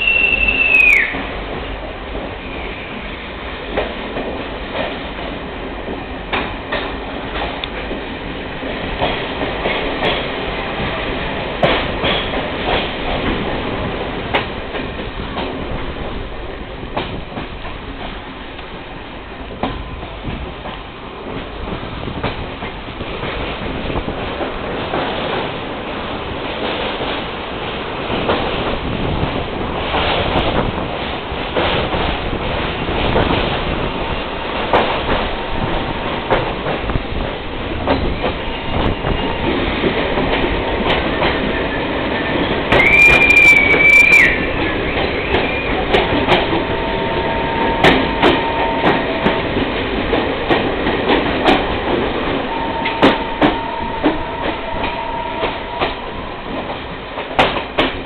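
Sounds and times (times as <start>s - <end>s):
train wheel squeal: 0.0s - 1.3s, 2.4s - 3.2s, 41.4s - 49.6s, 52.3s - 56.5s
rail joint clacks: 0.0s - 58.0s
train rumbling on rails: 0.0s - 58.0s.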